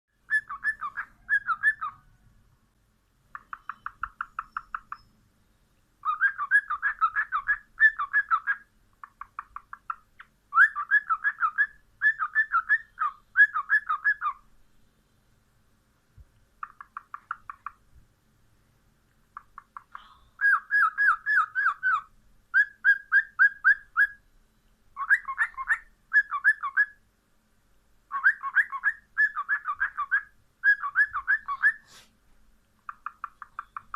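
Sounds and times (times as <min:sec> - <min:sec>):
cockatiel chirping: 0:00.3 - 0:02.1, 0:03.3 - 0:05.2, 0:06.0 - 0:14.4, 0:16.6 - 0:17.8, 0:19.4 - 0:24.2, 0:25.0 - 0:27.0, 0:28.1 - 0:32.0, 0:32.9 - 0:33.9.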